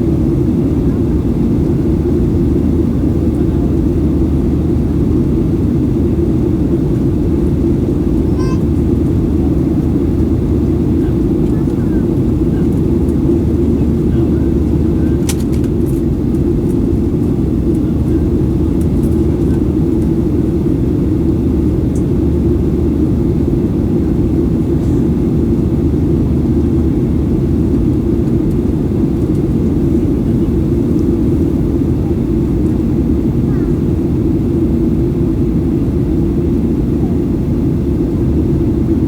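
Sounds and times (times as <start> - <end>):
jet engines and airflow roar: 0.0 - 39.0.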